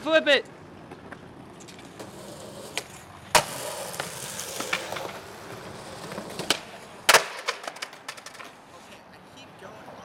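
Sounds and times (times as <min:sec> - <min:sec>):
skateboard wheels rolling: 0:00.6 - 0:09.9
skateboard cracking and slapping: 0:01.2 - 0:08.7.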